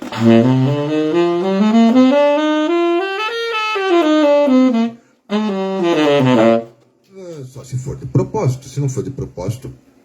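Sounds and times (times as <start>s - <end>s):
saxophone playing scale run: 0.0s - 6.9s.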